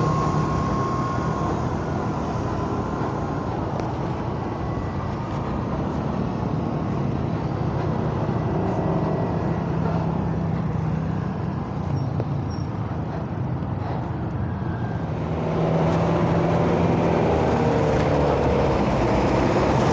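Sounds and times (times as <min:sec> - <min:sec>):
whine bending in pitch: 0:00.0 - 0:06.0
road traffic noise: 0:00.0 - 0:19.9
truck engine running: 0:00.0 - 0:19.9.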